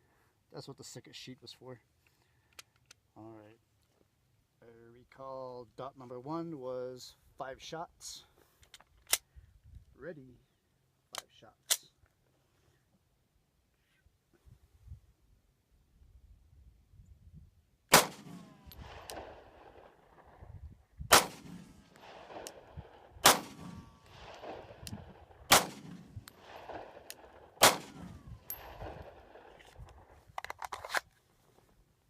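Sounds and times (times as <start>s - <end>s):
pistol shots with ringing echo: 17.9s - 20.1s, 21.1s - 29.6s.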